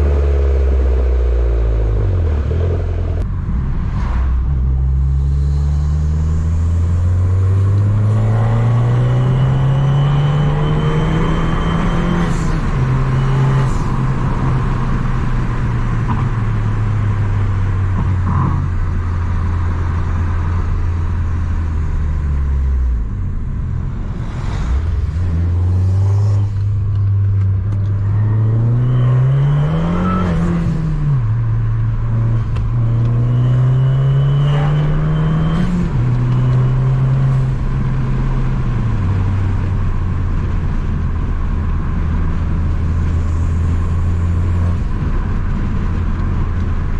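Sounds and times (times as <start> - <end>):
car engine revving: 0.0 - 46.9.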